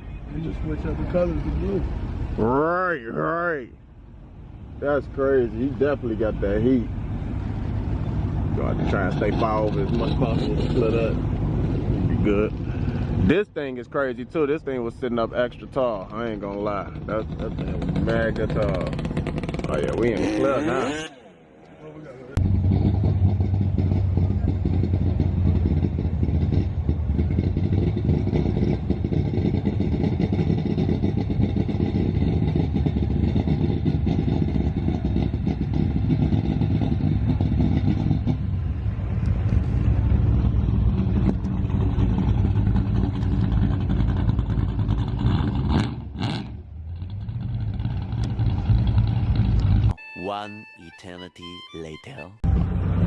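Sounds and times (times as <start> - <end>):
vehicle engines running: 0.0 - 53.0.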